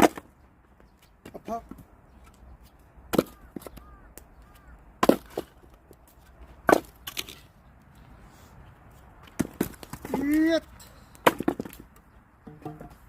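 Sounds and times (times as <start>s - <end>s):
axe chopping firewood: 0.0s - 0.3s, 3.1s - 3.9s, 5.0s - 5.7s, 6.6s - 7.4s, 9.3s - 13.0s.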